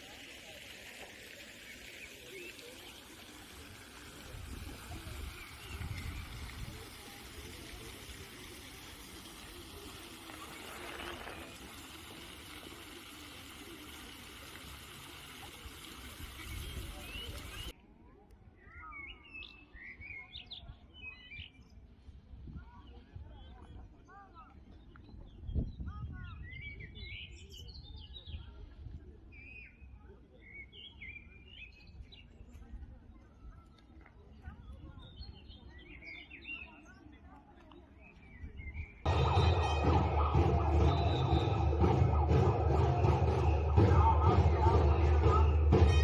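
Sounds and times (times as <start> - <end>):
fountain water splashing: 0.0 - 17.7, 39.1 - 46.0
songbirds singing whistled phrases: 16.3 - 17.8, 18.5 - 21.9, 22.8 - 28.6, 29.2 - 32.5, 33.2 - 39.8, 40.8 - 46.0.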